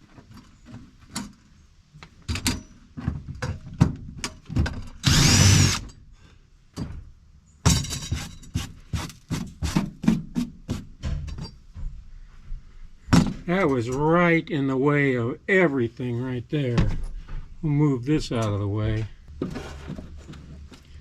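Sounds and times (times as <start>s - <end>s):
knocks and clatter of handled parts: 2.0s - 5.0s, 6.7s - 12.0s
power drill running: 5.0s - 5.8s.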